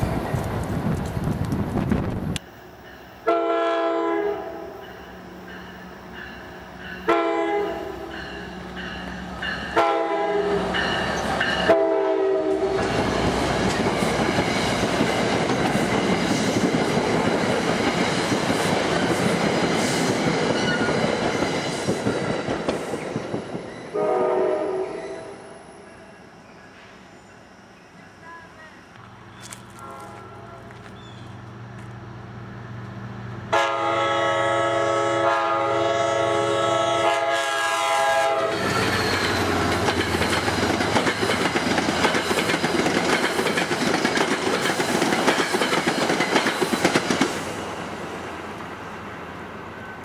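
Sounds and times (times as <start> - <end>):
train air horn blasts: 3.2 - 5.0, 7.0 - 8.5, 9.7 - 10.9, 11.6 - 12.9, 23.9 - 25.6, 29.7 - 30.8, 33.5 - 38.8
train clattering over rails: 4.8 - 24.2, 38.1 - 47.9.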